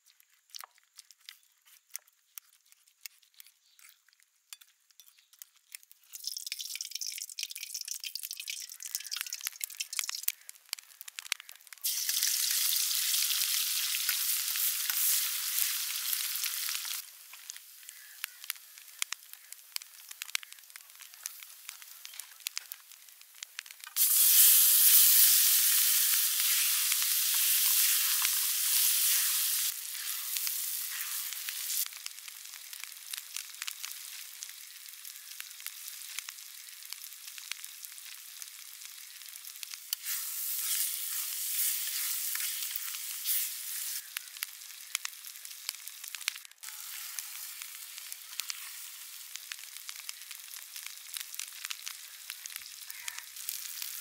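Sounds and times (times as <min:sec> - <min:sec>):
frying crackle with pops: 0:00.0 - 0:54.0
vegetables sizzling in hot oil: 0:05.0 - 0:54.0.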